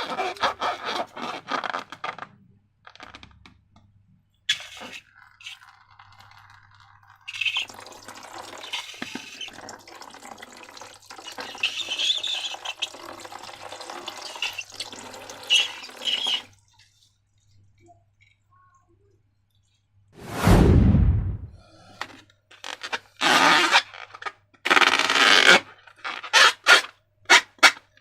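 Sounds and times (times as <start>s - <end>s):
slime being poured and worked: 4.5s - 18.8s.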